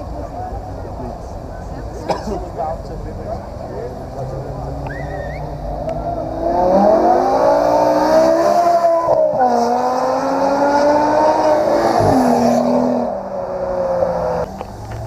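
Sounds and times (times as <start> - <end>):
car engine accelerating through gears: 4.1 - 15.0.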